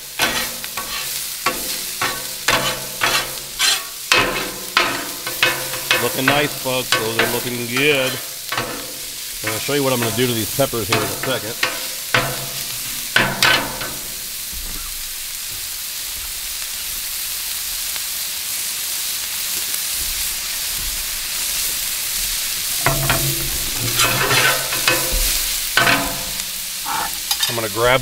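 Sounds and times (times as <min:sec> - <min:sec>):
metal spatula scraping griddle: 0:00.0 - 0:14.9, 0:22.4 - 0:28.0
vegetables sizzling on griddle: 0:00.0 - 0:28.0.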